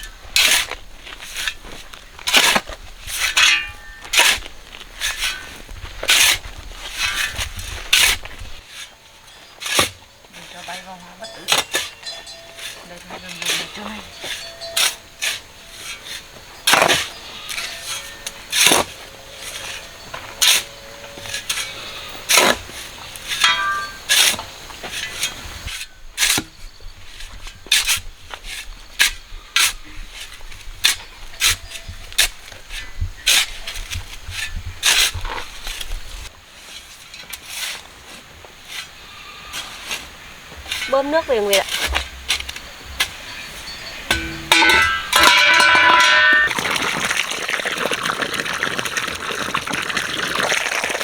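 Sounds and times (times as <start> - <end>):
hand tool striking ground: 0.0 - 26.6, 39.5 - 47.0.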